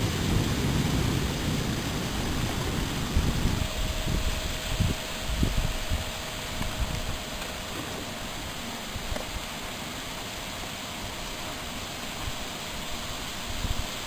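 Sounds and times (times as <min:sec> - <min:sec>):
wind buffeting microphone: 0:00.0 - 0:07.3
thunderstorm rain hiss: 0:00.0 - 0:14.0.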